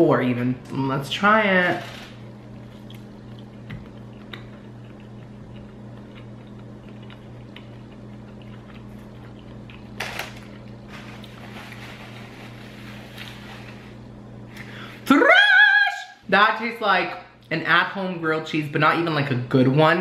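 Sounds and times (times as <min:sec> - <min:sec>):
steady low hum: 0:00.0 - 0:20.0
wet mouth clicks chewing: 0:02.5 - 0:10.8
paper napkin rustling: 0:10.9 - 0:14.1.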